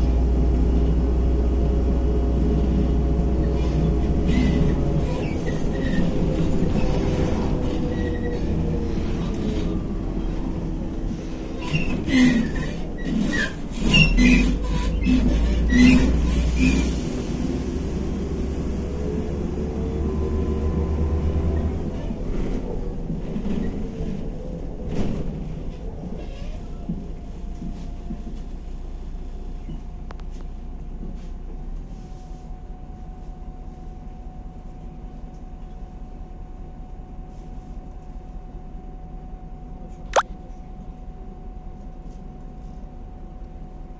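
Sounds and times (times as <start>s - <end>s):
bus body clattering and squeaking: 3.2s - 18.9s, 21.4s - 28.8s.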